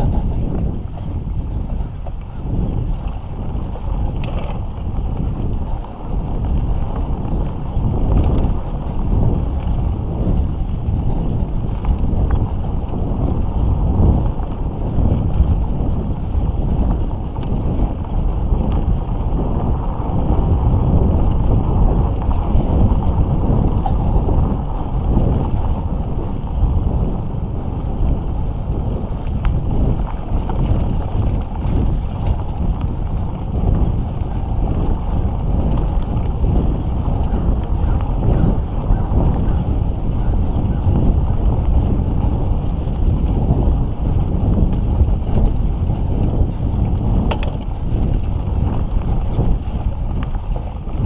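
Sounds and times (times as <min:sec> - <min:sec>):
wind buffeting microphone: 0:00.0 - 0:51.0
faint clicks and rattles: 0:04.0 - 0:06.5, 0:47.2 - 0:50.6.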